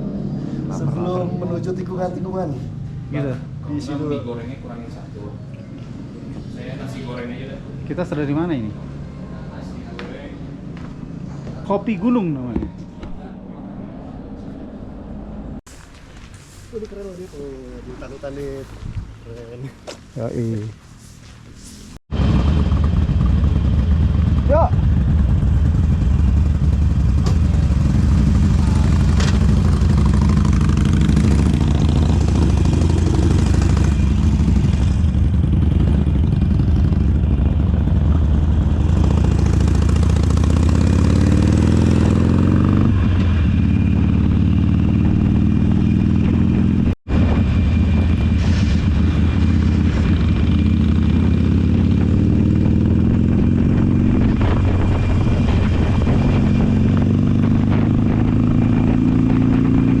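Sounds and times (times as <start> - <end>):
motorcycle engine accelerating: 22.1 - 60.0.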